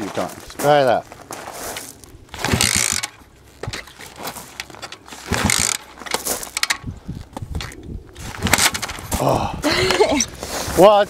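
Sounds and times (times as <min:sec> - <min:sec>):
dirt bike kick starter kicks: 0:02.3 - 0:09.2
mechanical knocks and rattles: 0:02.3 - 0:09.2.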